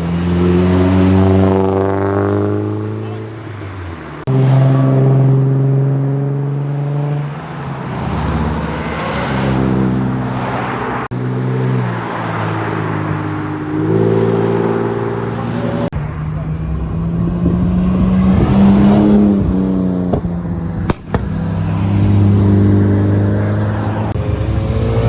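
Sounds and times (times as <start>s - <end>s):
car engines revving: 0.0s - 25.0s
car accelerating past: 21.5s - 25.0s.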